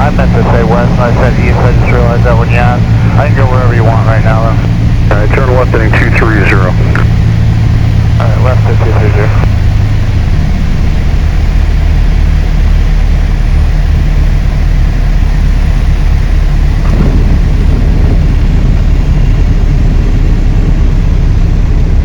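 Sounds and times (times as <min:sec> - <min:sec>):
light aircraft engine drone: 0:00.0 - 0:22.0.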